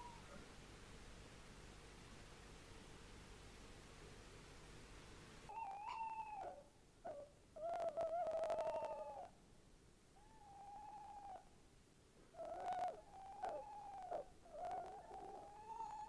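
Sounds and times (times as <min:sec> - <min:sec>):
owl hooting: 0:00.0 - 0:00.4, 0:05.5 - 0:09.3, 0:10.2 - 0:11.5, 0:12.3 - 0:16.0.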